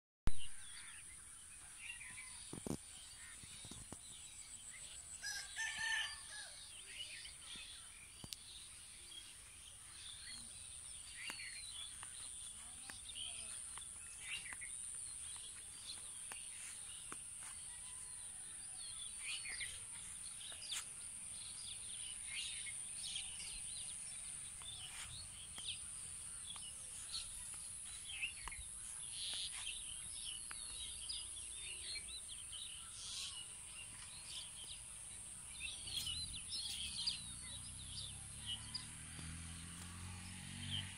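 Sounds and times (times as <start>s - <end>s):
small birds chirping: 0.3s - 40.9s
rooster crowing: 5.2s - 6.6s.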